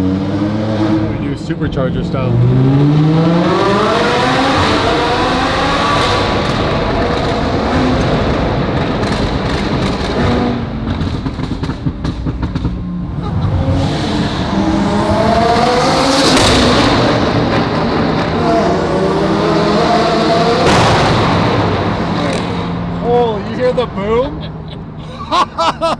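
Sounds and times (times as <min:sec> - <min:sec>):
car engine revving hard: 0:00.0 - 0:24.6
exhaust crackles and pops: 0:04.6 - 0:13.5.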